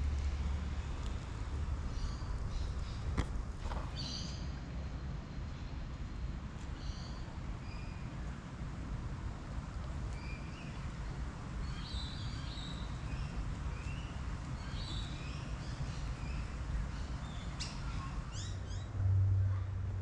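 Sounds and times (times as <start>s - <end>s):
birds chirping and calling: 14.6s - 18.9s.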